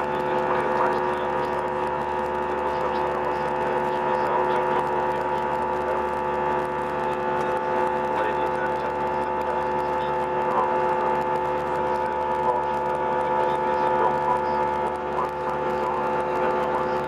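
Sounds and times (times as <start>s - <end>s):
airplane cabin hum: 0.0s - 17.0s
faint voices: 0.0s - 17.0s.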